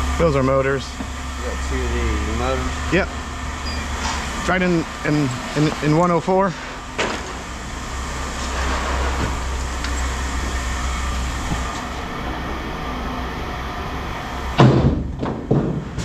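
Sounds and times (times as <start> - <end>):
vehicle engine idling: 0.0 - 16.0
loud thumps: 14.6 - 16.0.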